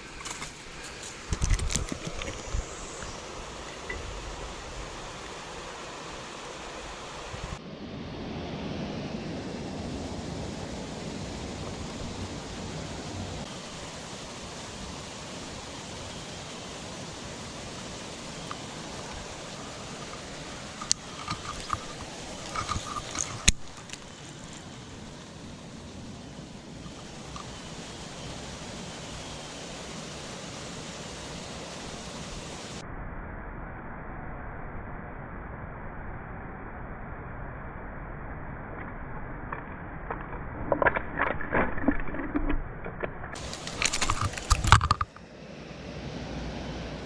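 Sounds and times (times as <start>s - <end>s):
steady rushing noise: 0.0s - 33.8s.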